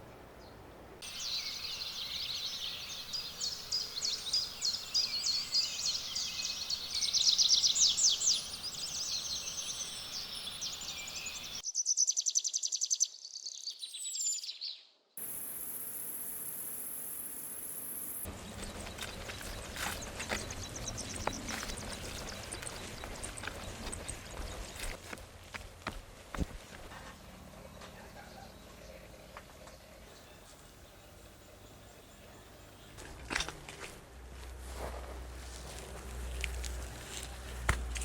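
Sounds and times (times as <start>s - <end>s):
birds calling: 0.4s - 12.9s, 17.8s - 34.0s
high steady insect buzz: 15.2s - 18.3s
insects chirring: 15.2s - 25.0s.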